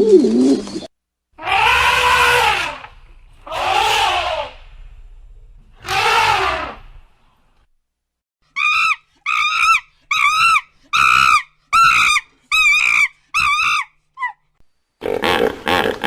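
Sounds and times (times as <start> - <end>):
animal crying: 1.4 - 4.7, 5.8 - 6.9, 8.5 - 14.4.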